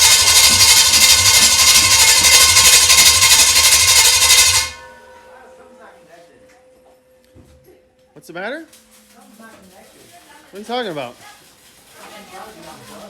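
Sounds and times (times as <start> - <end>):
scooter engine running: 0.0 - 4.8.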